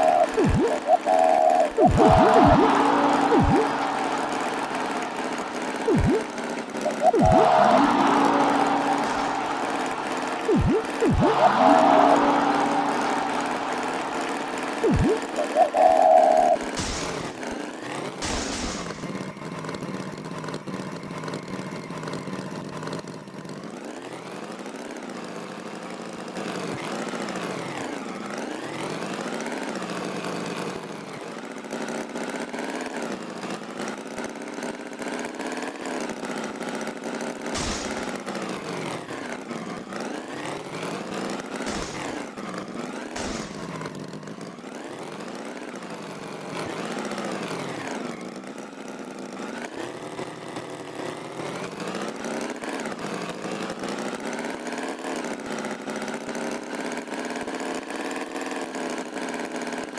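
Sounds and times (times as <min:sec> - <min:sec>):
engine revving: 0:00.0 - 0:17.6, 0:18.2 - 0:19.2, 0:37.6 - 0:38.3, 0:41.6 - 0:42.4, 0:43.2 - 0:43.8.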